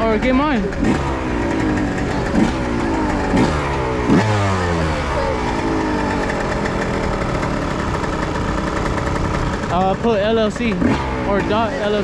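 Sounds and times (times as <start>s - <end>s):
dirt bike engine revving and idling: 0.0s - 12.0s.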